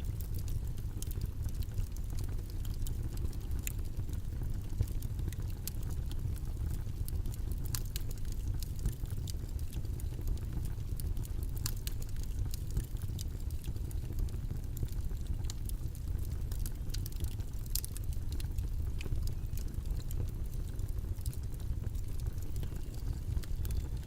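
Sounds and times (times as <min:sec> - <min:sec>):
faint clicks and ticks: 0:00.0 - 0:24.0
low rumbling noise: 0:18.9 - 0:24.0.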